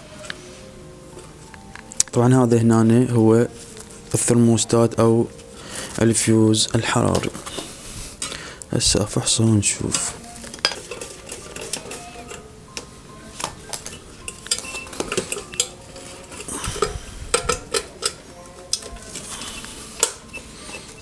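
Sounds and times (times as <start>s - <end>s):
tools clinking on metal pot: 9.9s - 21.0s.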